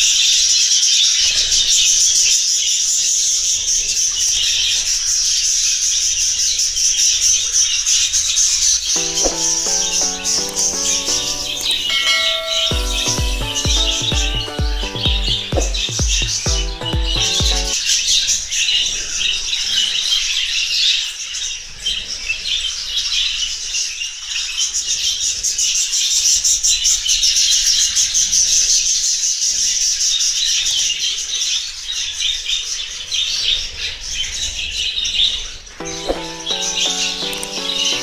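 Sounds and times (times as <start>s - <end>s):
flock of budgerigars chattering: 0.0s - 11.9s, 18.5s - 35.6s.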